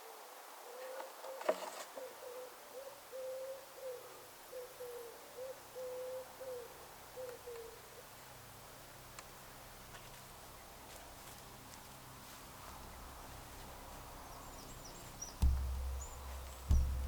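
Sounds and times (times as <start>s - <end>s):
low hooting notes: 15.3s - 17.0s
sharp knock: 15.4s - 17.0s.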